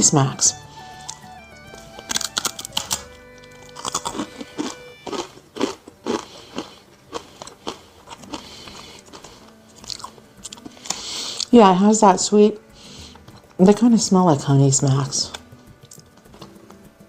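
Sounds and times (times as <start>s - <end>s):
crunching and chewing snack: 1.0s - 11.5s, 15.3s - 16.8s.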